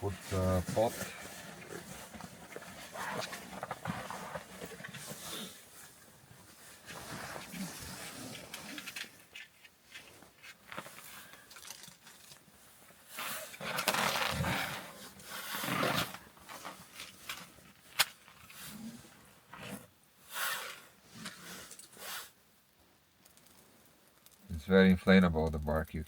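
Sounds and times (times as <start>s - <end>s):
wood and bark scraping: 13.2s - 17.4s.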